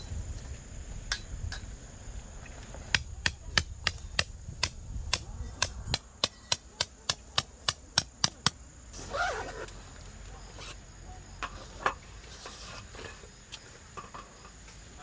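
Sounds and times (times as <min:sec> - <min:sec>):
hammer striking tent pegs: 0:02.9 - 0:08.6.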